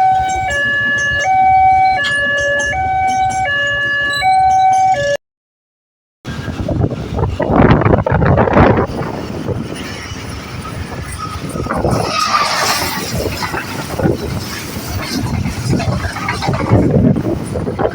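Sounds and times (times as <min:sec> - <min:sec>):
train rumbling: 0:00.0 - 0:05.2, 0:06.3 - 0:17.9
wind buffeting microphone: 0:06.3 - 0:17.9.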